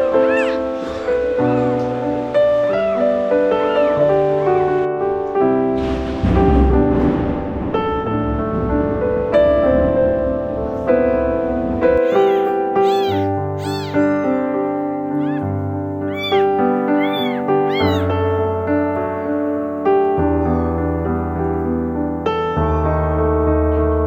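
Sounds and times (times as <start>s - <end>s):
kitten meowing: 0.0s - 1.9s, 12.0s - 14.5s, 15.1s - 18.2s, 20.4s - 20.8s
piano music: 0.0s - 24.0s.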